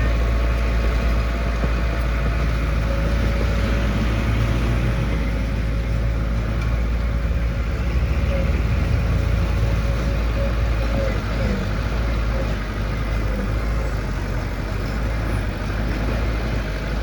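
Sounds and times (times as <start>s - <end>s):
heavy diesel engine rumbling: 0.0s - 17.0s.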